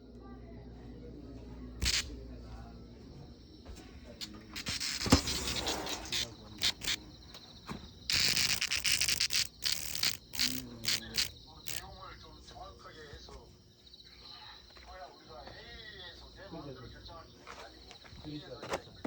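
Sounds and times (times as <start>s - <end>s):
cicada buzzing: 1.8s - 2.2s, 4.1s - 12.4s.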